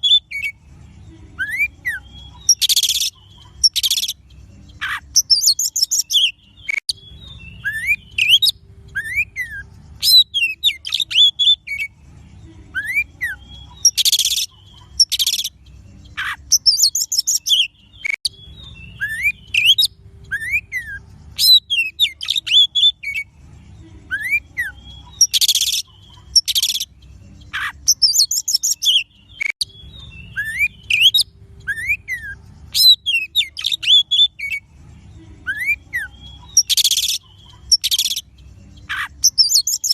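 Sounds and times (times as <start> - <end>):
bird song with whistled phrases: 0.0 - 39.9
harsh rasping bird calls: 1.4 - 11.9.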